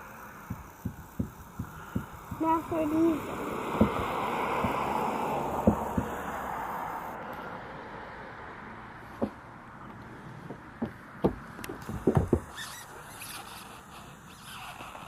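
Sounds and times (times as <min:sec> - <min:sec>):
soft knocks and taps: 0:03.8 - 0:05.0, 0:05.6 - 0:06.2, 0:09.2 - 0:12.5.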